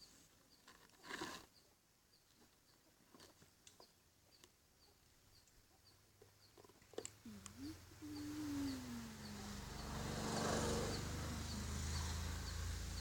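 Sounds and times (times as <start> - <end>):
faint high chirp: 7.3 - 13.0.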